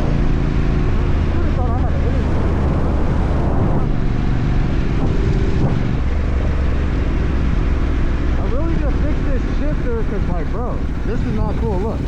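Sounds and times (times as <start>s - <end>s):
motorcycle engine running: 0.0s - 12.0s
wind noise on microphone: 0.0s - 12.0s.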